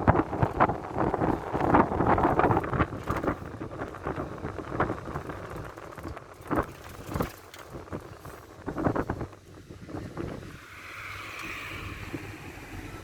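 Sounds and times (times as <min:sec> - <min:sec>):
body knocks and rattles: 0:00.0 - 0:10.4
minibus engine and road rumble: 0:00.0 - 0:13.0.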